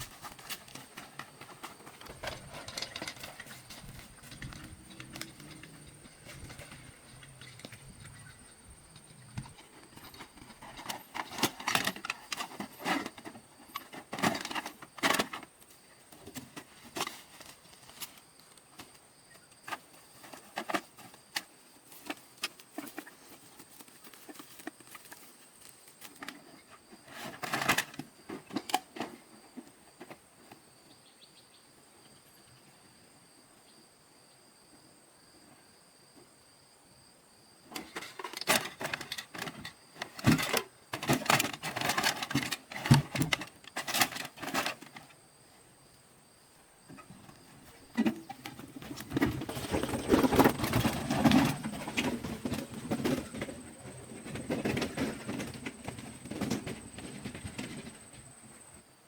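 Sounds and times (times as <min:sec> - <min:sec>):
hard objects clicking and clattering: 0:00.2 - 0:15.4, 0:47.9 - 0:58.0.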